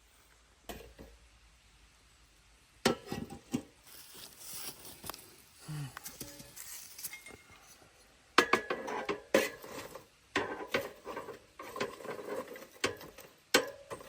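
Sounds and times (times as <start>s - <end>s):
rustling: 3.4s - 8.0s.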